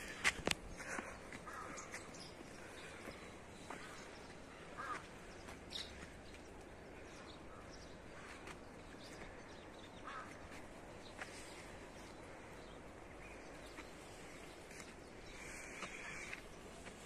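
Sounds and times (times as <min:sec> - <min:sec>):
faint short bird calls: 0:00.8 - 0:06.0, 0:15.3 - 0:16.5.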